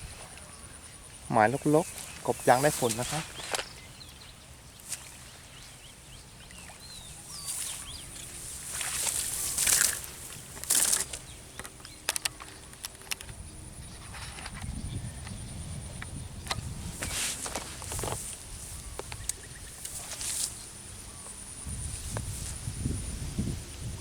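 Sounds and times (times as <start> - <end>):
faint bird chirps: 0.0 - 12.7
sharp clicks: 8.8 - 15.4.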